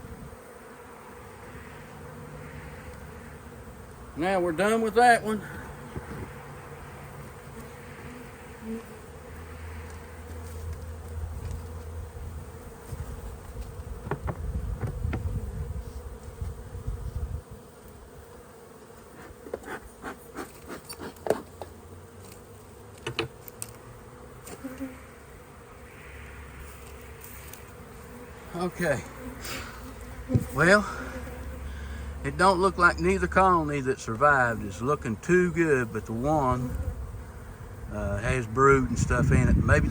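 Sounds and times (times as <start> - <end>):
bees buzzing: 0.0 - 39.9
sharp clicks and knocks: 23.0 - 23.8.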